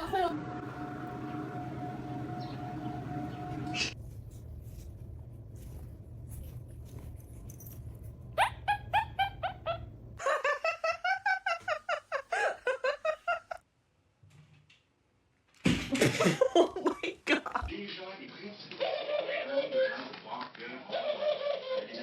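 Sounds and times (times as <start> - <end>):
low hum: 0.0 - 10.2
animal yelping: 8.4 - 9.9.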